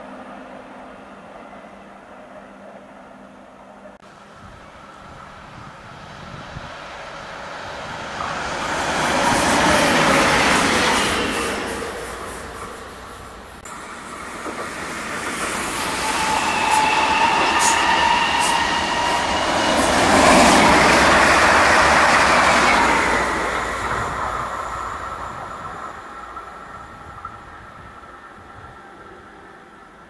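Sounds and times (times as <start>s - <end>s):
electric train passing at speed: 0.0s - 30.0s.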